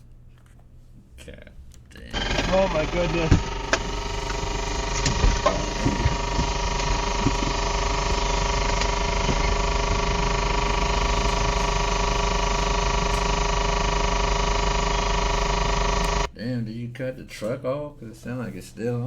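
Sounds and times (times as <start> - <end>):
truck engine running: 2.1 - 16.3.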